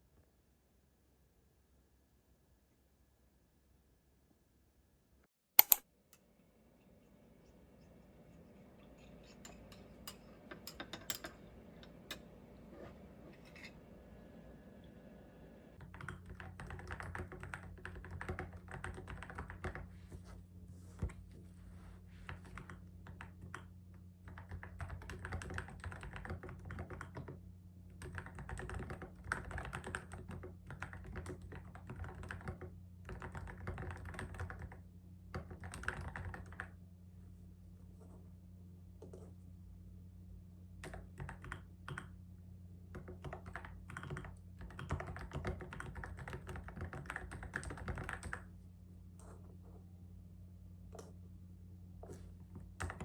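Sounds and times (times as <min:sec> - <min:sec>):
keyboard typing clicks: 0:05.6 - 0:05.8, 0:43.0 - 0:48.4.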